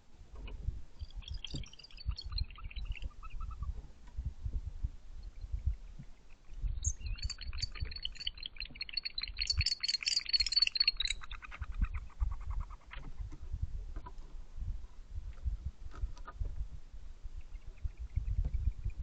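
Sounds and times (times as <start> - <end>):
barn owls chittering: 1.0 - 3.7, 5.6 - 13.3.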